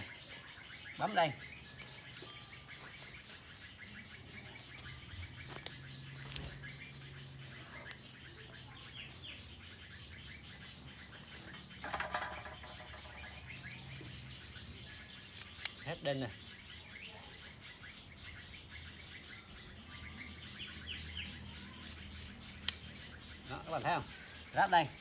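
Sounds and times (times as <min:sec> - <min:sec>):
small birds chirping: 0:00.0 - 0:25.0
handling noise clatter: 0:11.8 - 0:13.4.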